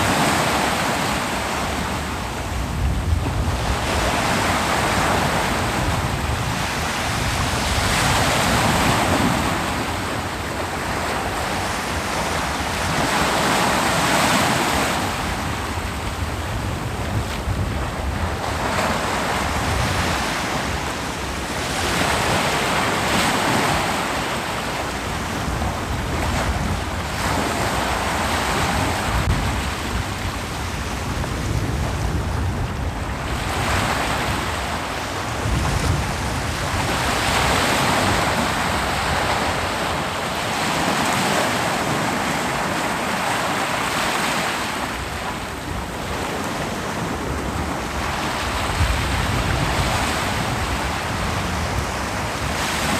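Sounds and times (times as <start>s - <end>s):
ocean waves breaking on beach: 0.0s - 52.9s
wind on microphone: 0.0s - 52.9s.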